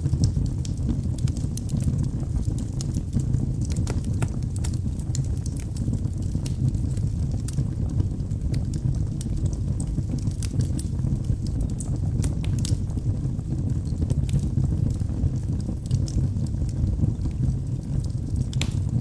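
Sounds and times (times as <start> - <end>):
fire flames rumbling: 0.0 - 19.0
logs crackling and popping: 0.0 - 19.0.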